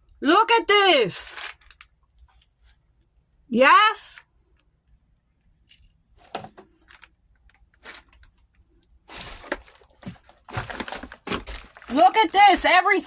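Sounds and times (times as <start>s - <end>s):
debris rustling and scraping: 9.0s - 12.7s.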